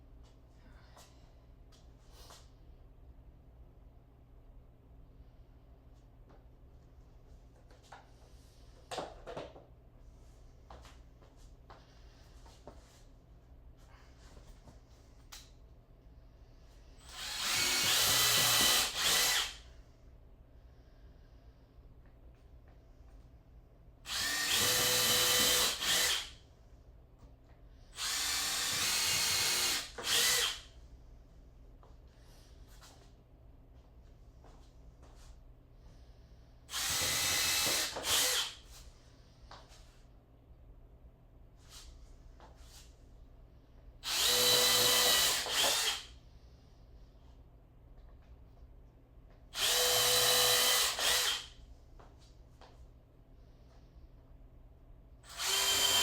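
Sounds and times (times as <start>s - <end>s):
power drill whining: 17.0s - 19.6s, 24.1s - 26.4s, 28.0s - 30.7s, 36.7s - 38.6s, 44.0s - 46.1s, 49.6s - 51.6s, 55.2s - 56.0s.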